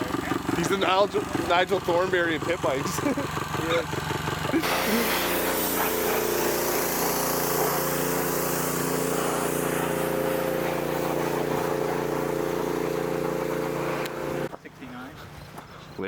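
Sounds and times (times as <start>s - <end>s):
engine humming steadily: 0.0s - 15.7s
constant hiss: 4.6s - 15.1s.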